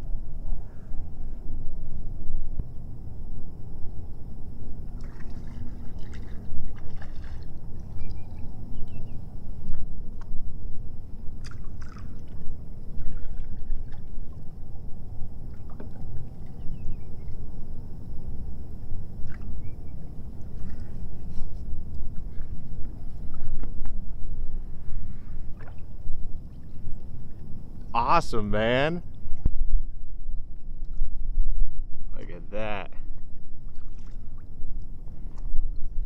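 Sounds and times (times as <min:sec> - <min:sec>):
steady low rumble: 0:00.0 - 0:36.0
water lapping against kayak: 0:04.8 - 0:10.3, 0:11.2 - 0:27.9, 0:33.0 - 0:36.0
small knocks and splashes: 0:05.0 - 0:08.1, 0:11.4 - 0:12.4, 0:33.7 - 0:34.5.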